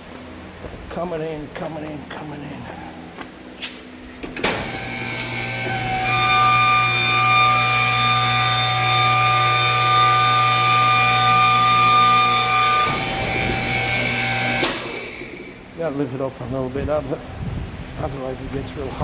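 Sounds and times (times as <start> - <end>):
hangar door motor whining: 4.1 - 15.8.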